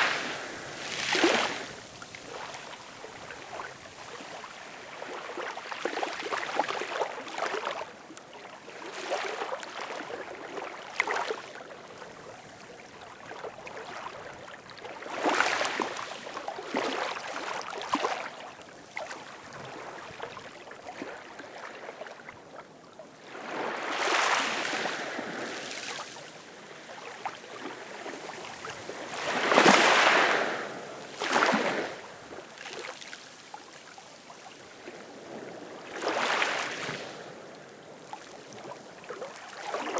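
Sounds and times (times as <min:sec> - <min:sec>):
ocean waves washing: 0:00.0 - 0:03.7.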